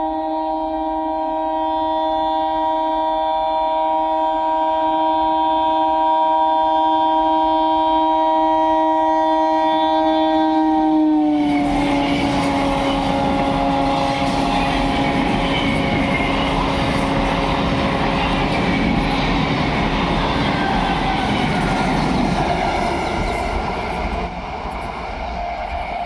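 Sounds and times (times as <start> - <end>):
train horn chord: 0.0 - 26.0
train rumbling on rails: 0.0 - 26.0.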